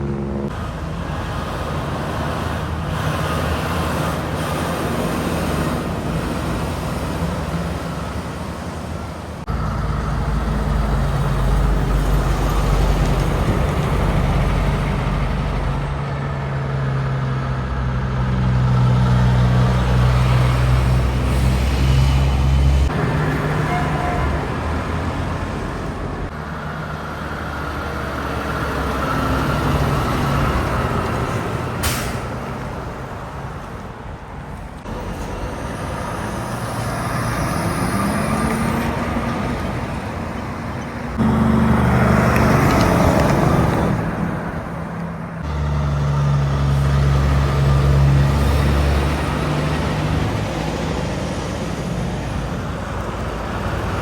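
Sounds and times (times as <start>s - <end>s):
heavy trucks passing: 0.0s - 54.0s.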